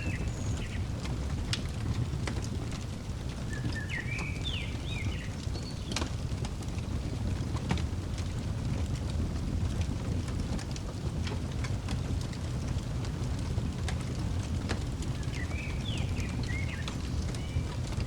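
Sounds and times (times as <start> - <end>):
bird chirping: 0.0 - 0.9, 3.4 - 6.0, 15.2 - 18.0
wood fire crackling: 0.0 - 18.0.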